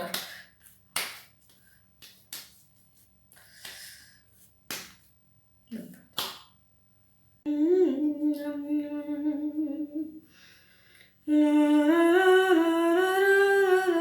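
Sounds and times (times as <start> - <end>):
woman humming: 7.5 - 10.3, 11.3 - 14.0.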